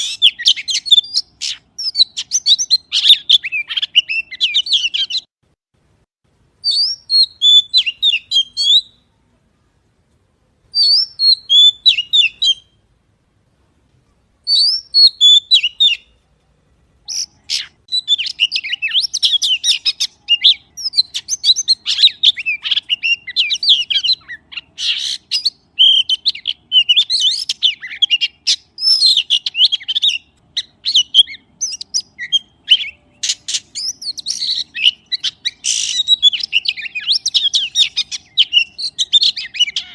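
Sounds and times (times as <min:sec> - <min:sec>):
magpie chirping: 0:00.0 - 0:05.3, 0:06.6 - 0:09.0, 0:10.8 - 0:12.7, 0:14.5 - 0:16.1, 0:17.0 - 0:39.9.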